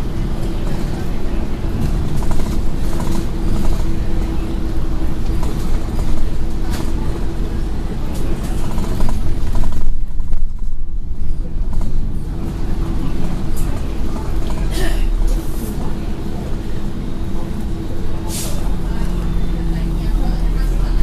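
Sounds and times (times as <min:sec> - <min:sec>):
bus engine rumble: 0:00.0 - 0:21.0
road noise: 0:00.0 - 0:21.0.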